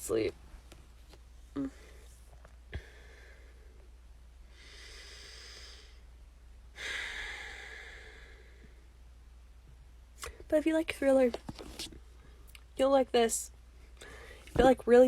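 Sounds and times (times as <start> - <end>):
person breathing: 1.6 - 6.1, 6.8 - 8.9, 14.0 - 14.5.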